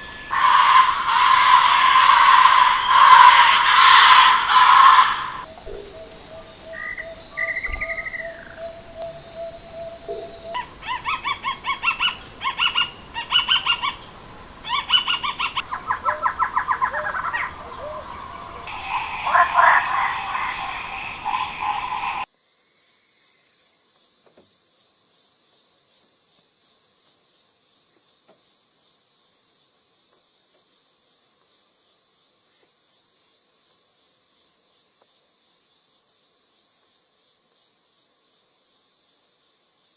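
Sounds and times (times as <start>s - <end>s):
insect chirring: 0.0s - 22.3s
whistled animal chirps: 0.0s - 22.3s.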